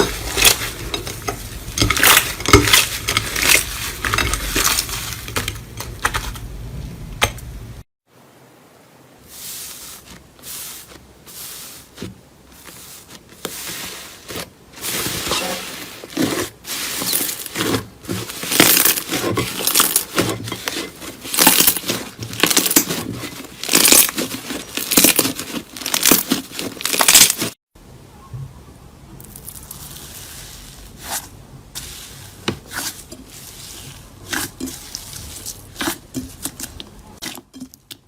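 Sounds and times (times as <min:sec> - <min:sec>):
slime crackling and popping: 0:23.6 - 0:27.6.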